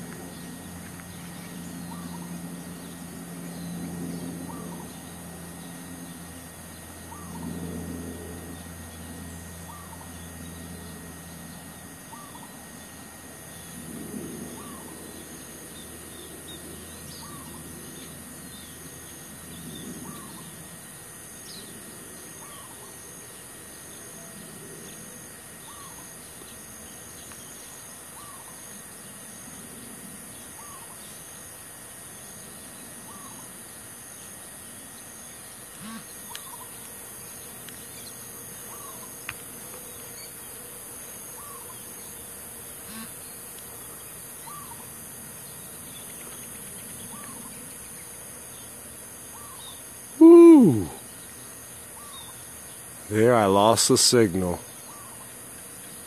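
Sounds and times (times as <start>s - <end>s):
high-pitched hiss: 48.6s - 56.0s.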